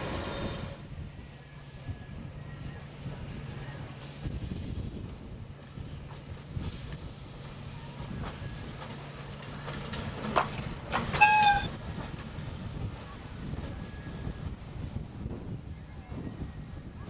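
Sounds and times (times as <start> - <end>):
electric train humming: 0.0 - 15.7
train wheel clicks: 8.3 - 12.4
train horn blast: 11.0 - 11.8.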